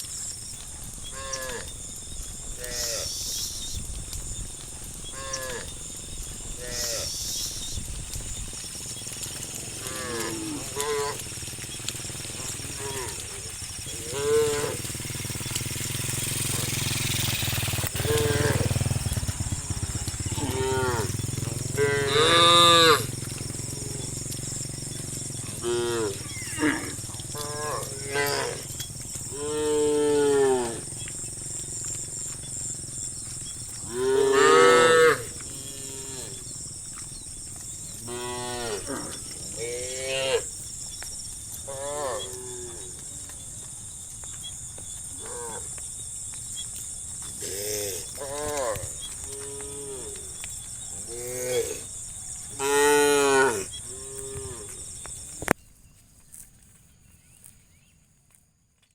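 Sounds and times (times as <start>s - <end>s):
animal cries: 25.4s - 28.6s.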